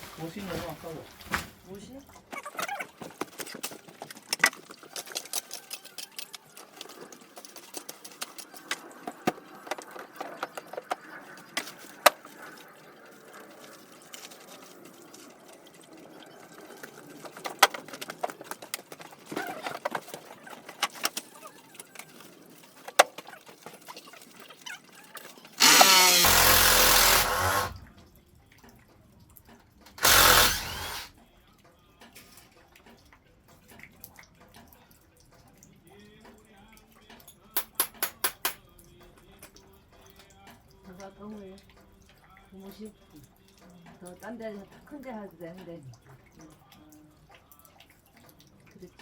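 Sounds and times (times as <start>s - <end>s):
wood and tools clattering: 2.2s - 12.3s, 17.2s - 24.1s, 25.2s - 27.8s, 30.0s - 31.1s
power tool running: 25.6s - 27.8s, 30.0s - 31.1s.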